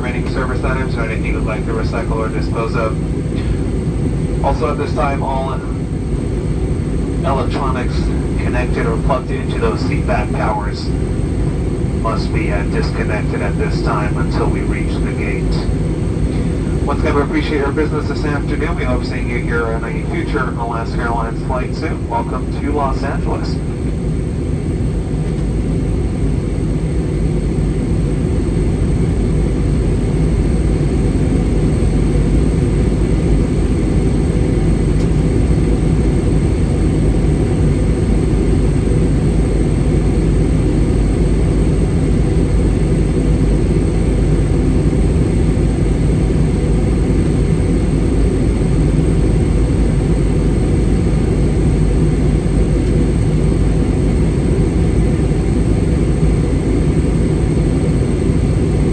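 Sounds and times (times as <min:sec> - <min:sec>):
airliner cabin rumble: 0:00.0 - 0:58.9.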